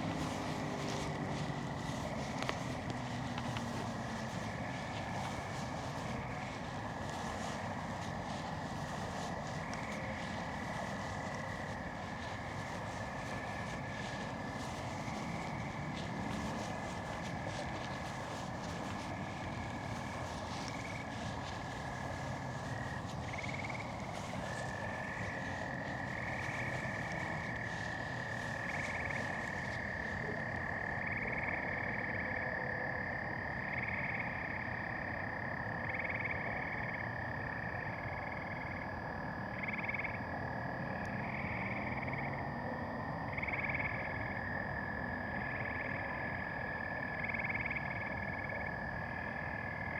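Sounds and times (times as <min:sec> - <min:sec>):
crackly rustling: 0:00.0 - 0:31.4
short frog calls: 0:00.0 - 0:34.8
frogs trilling: 0:00.0 - 0:49.9.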